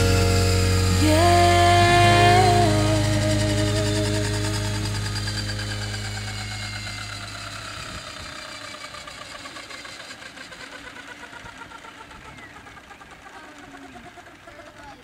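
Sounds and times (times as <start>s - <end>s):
low steady hum: 0.0s - 14.3s
electric helicopter motor whine: 0.0s - 15.0s.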